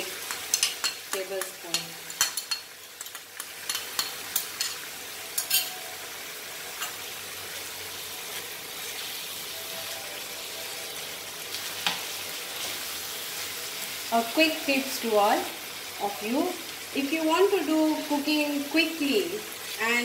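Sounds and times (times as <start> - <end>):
food sizzling in a frying pan: 0.0 - 20.0
spoon clicking against pan: 0.2 - 4.8.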